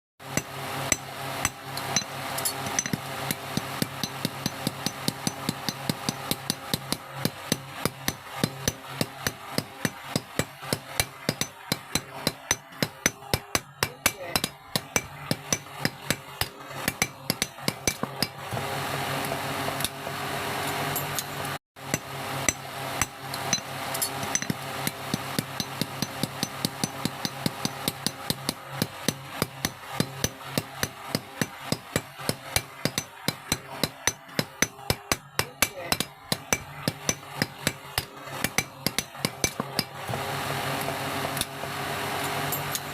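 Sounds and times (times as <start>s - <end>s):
hammer striking metal: 0.3s - 18.6s, 20.6s - 40.2s, 42.2s - 42.9s.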